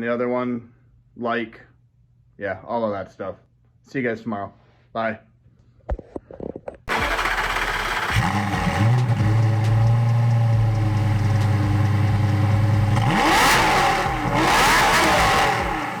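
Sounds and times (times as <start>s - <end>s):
car engine idling and revving: 6.9s - 16.0s.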